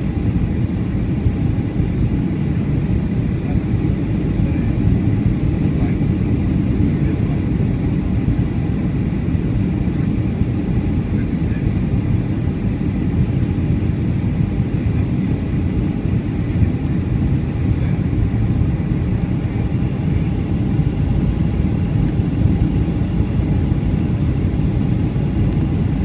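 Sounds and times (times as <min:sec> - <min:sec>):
airliner cabin rumble: 0:00.0 - 0:26.0
faint constant hum: 0:00.0 - 0:26.0.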